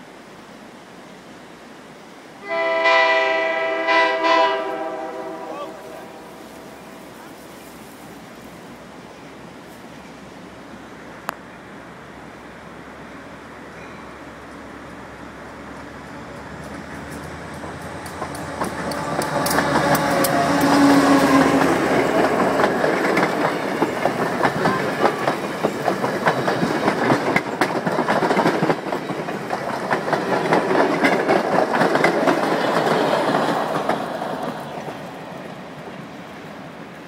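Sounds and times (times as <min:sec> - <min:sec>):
locomotive engine hum: 0:00.0 - 0:37.0
train wheels clattering on rails: 0:13.7 - 0:36.6.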